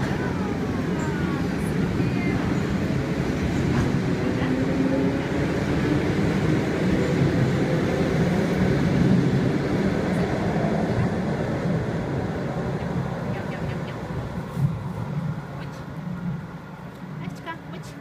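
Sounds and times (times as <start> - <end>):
train rumbling past: 0.0 - 18.0.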